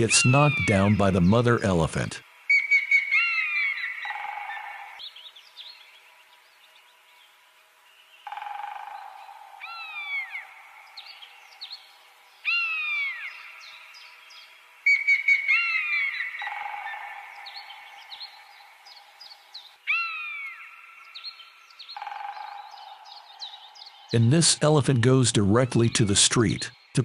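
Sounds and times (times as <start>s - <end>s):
sharp falling bird calls: 2.5s - 5.8s, 8.2s - 24.3s.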